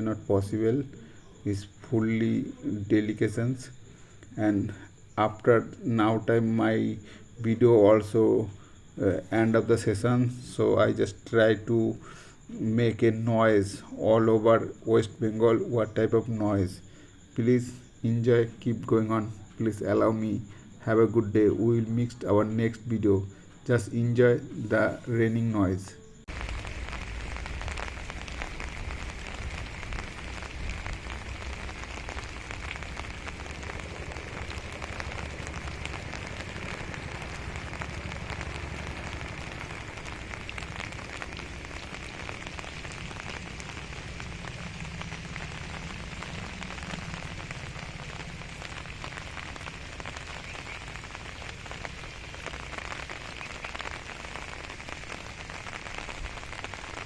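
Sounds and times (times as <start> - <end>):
heavy rain falling: 0.0 - 4.2, 26.2 - 57.0.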